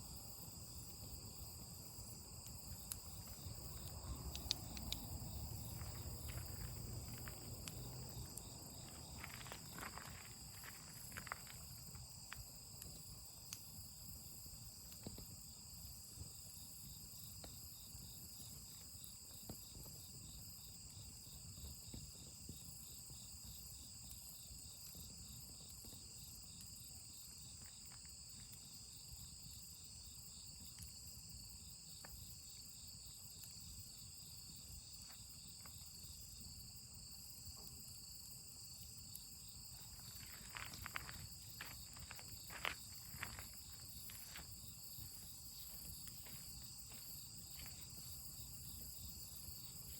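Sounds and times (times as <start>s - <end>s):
crickets chirping: 0.0s - 49.9s.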